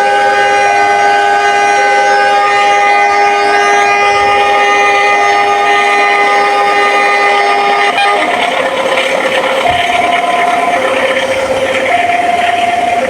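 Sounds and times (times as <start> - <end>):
passing train rushing: 0.0 - 13.0
train horn chord: 0.0 - 13.0
two-tone electronic warning alarm: 0.0 - 13.0.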